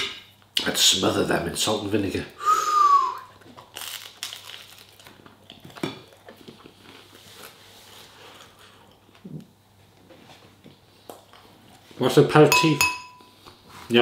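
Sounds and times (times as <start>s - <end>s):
person chewing crunchy food: 3.3s - 9.5s.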